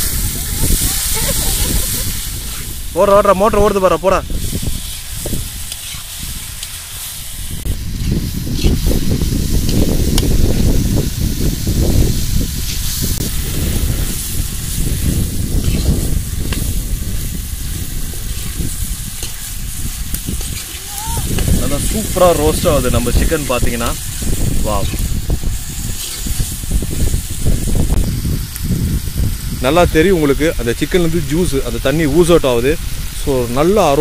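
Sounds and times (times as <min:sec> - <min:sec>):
chicken sizzling in a pan: 0:00.0 - 0:34.0
metal spatula stirring: 0:04.5 - 0:07.1, 0:18.1 - 0:25.1, 0:25.7 - 0:27.1.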